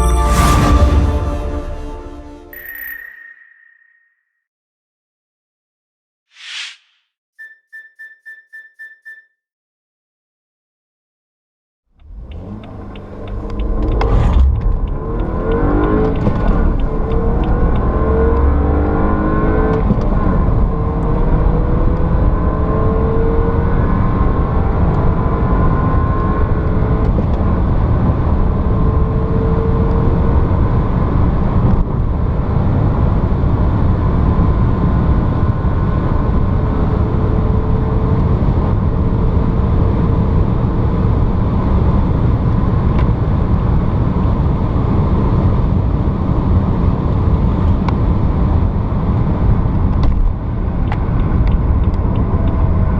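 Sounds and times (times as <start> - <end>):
car engine accelerating: 12.0 - 30.5
road and wind noise: 12.0 - 52.9.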